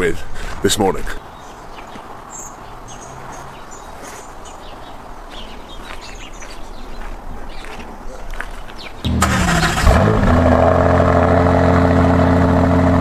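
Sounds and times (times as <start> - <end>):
small birds chirping: 0.0 - 9.1
outdoor background hiss: 0.0 - 13.0.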